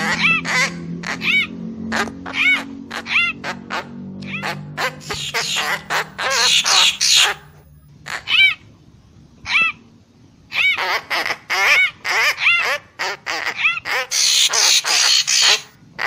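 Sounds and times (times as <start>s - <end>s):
bird calling harsh notes: 4.3s - 8.5s, 13.3s - 15.8s.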